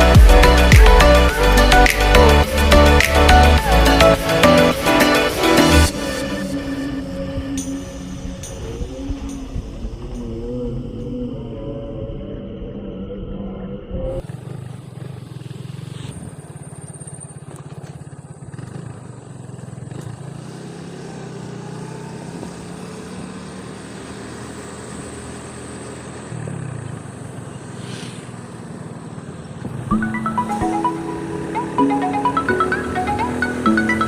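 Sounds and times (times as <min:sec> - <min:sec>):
motorcycle engine running: 0:00.0 - 0:10.8, 0:14.2 - 0:34.0
road and wind noise: 0:00.0 - 0:34.0.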